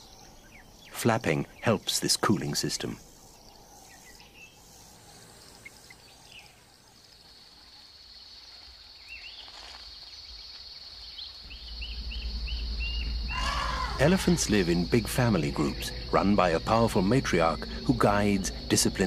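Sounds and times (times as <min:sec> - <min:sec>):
high insect trill: 0:00.0 - 0:19.0
low rumble: 0:11.4 - 0:19.0.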